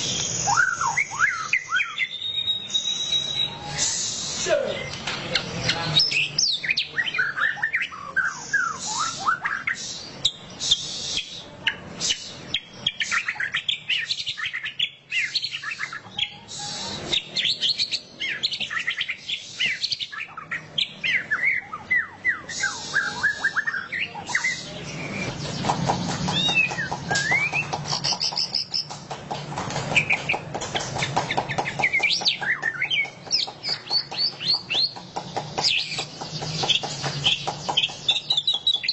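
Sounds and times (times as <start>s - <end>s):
bird singing twittering whistles: 0.0s - 28.9s, 31.3s - 38.9s
buzzy rattling birdsong: 0.0s - 38.9s.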